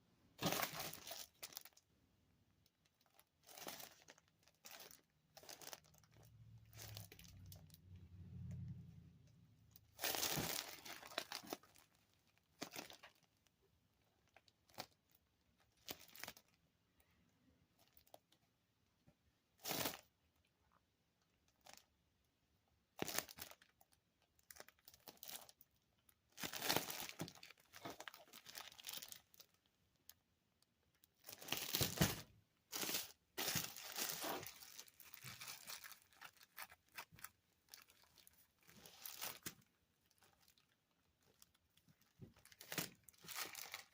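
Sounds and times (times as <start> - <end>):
plastic bag crinkling: 0.4 - 1.8, 2.9 - 7.8, 9.8 - 13.3, 14.2 - 16.6, 23.0 - 30.1, 31.1 - 43.9.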